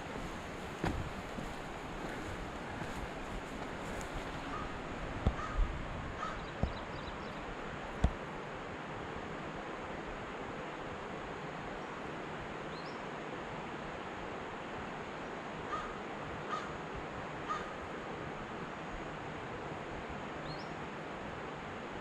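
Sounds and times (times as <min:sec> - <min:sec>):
bird calls: 0:00.0 - 0:04.8, 0:06.2 - 0:07.5
rushing background noise: 0:00.0 - 0:12.6.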